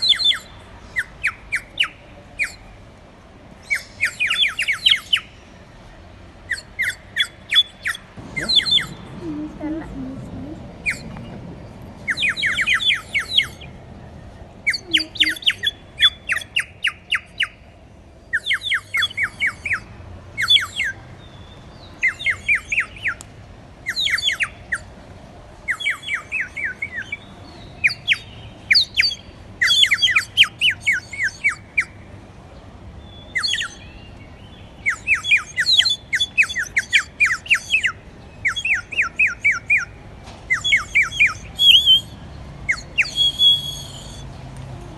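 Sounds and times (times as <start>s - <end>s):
water bird whistle warbling: 34.9s - 39.9s, 40.5s - 44.3s.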